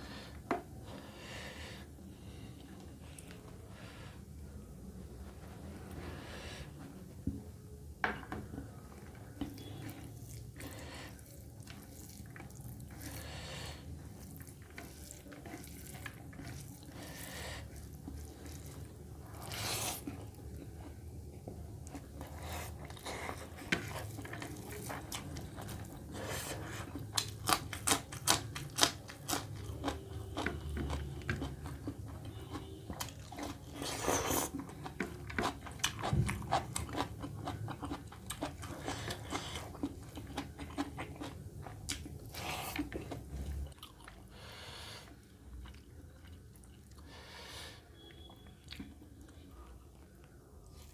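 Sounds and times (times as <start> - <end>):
person chewing food: 8.5 - 50.9
breathing or slurping: 12.9 - 14.4.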